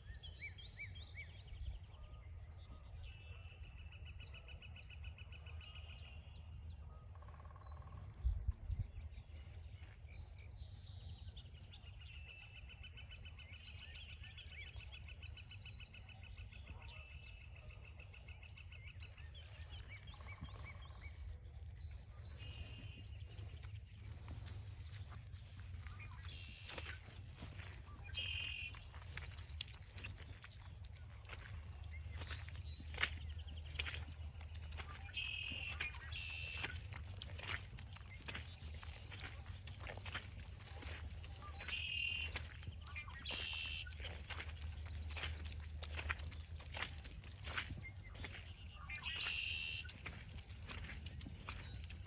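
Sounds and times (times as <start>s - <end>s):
birds trilling: 19.2s - 52.0s.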